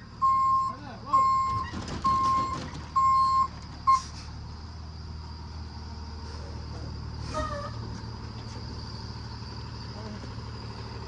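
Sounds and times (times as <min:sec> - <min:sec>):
truck reversing alarm beeping: 0:00.0 - 0:04.3
truck engine running: 0:00.0 - 0:11.0.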